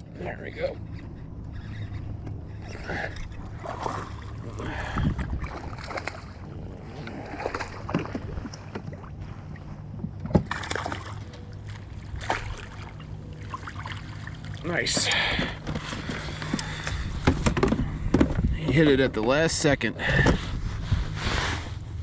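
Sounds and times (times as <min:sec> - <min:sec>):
water splashing around kayak: 0:00.9 - 0:17.9.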